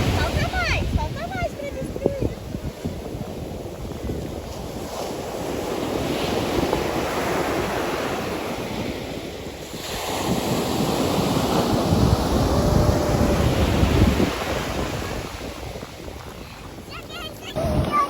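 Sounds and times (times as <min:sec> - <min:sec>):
ocean waves on shore: 0:00.0 - 0:18.0
wind buffeting microphone: 0:00.0 - 0:18.0.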